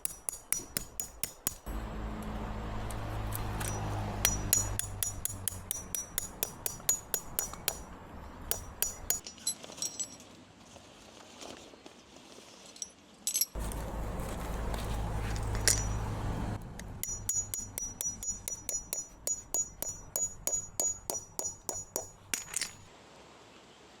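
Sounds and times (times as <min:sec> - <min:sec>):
rapid metallic clinks: 0:03.6 - 0:07.9, 0:08.5 - 0:10.2, 0:15.4 - 0:16.1, 0:17.0 - 0:22.9.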